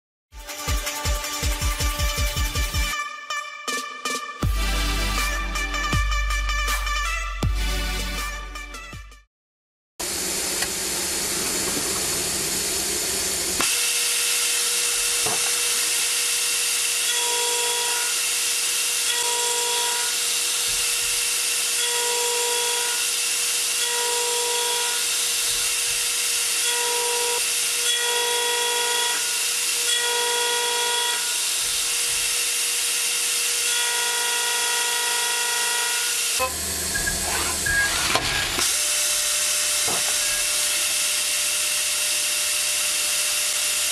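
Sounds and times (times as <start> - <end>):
metal-forming machine hissing and whining: 10.1 - 43.9.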